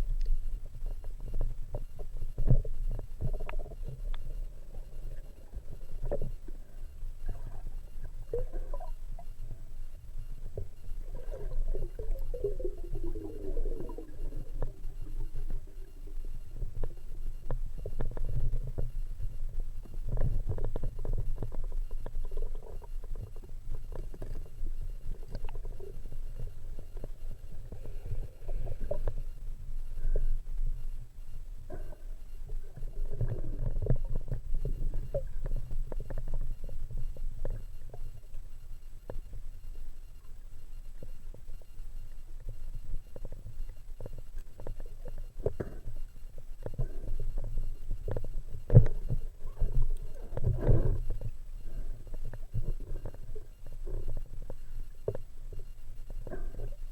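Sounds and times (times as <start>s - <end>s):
underwater clicks and knocks: 0.0s - 4.4s, 10.4s - 29.4s, 32.5s - 38.2s, 42.4s - 56.9s
muffled underwater rumble: 0.0s - 56.9s.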